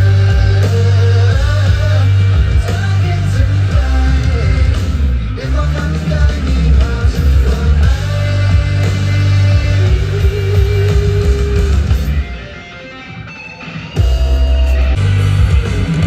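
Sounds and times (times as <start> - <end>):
person singing: 0.0 - 11.9
live rock band playing: 0.0 - 16.0.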